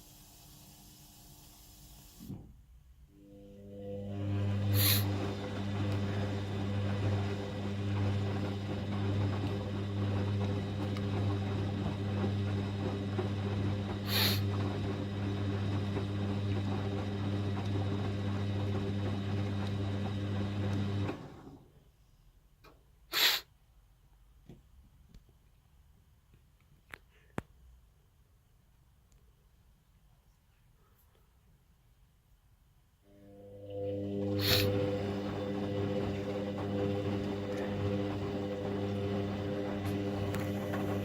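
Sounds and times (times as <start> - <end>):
washing machine humming: 3.3 - 21.6, 33.1 - 41.0
water splashing in washing machine: 3.8 - 21.4, 33.6 - 41.0.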